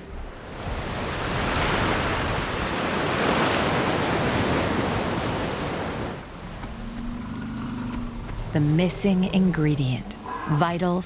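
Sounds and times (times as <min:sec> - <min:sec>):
ocean wave breaking on beach: 0:00.0 - 0:06.3.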